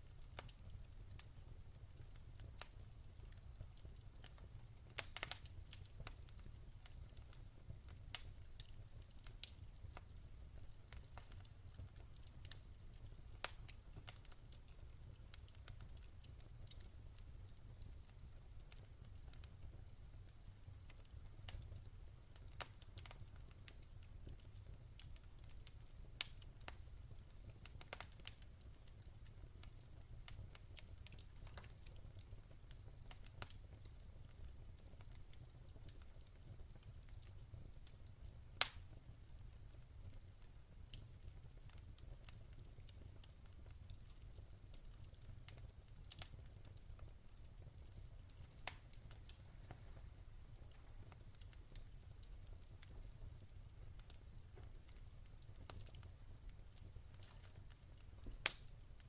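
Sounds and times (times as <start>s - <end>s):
low fire rumble: 0.0s - 59.0s
wood fire crackling: 0.0s - 59.0s.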